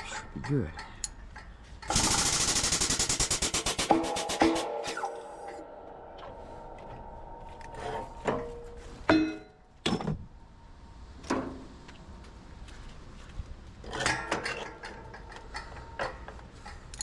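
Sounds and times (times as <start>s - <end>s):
sharp metallic knocks: 0.0s - 10.2s
metal clanking: 3.8s - 10.4s.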